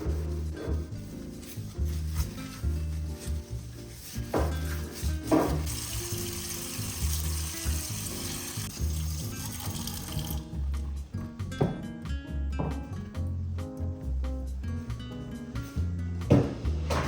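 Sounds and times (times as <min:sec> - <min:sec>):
tap running into sink: 0:04.3 - 0:10.5
background music with beat: 0:10.2 - 0:17.0.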